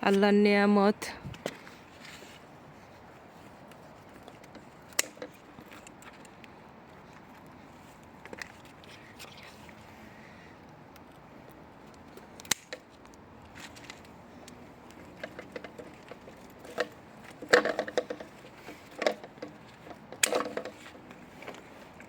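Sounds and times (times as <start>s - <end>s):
leaves rustling: 1.2s - 6.2s
plant stems clicking and snapping: 3.6s - 7.5s, 10.6s - 22.0s.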